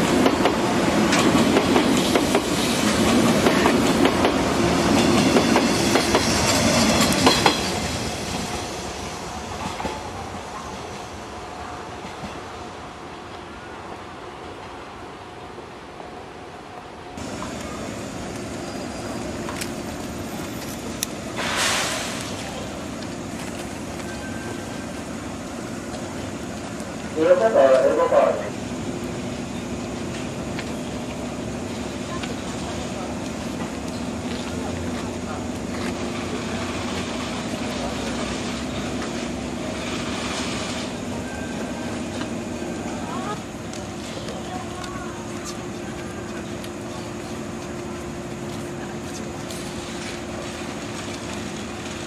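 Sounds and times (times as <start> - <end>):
electric train rumbling: 0.0 - 52.0
rushing noise: 17.2 - 32.0
short loud hiss: 21.3 - 22.6.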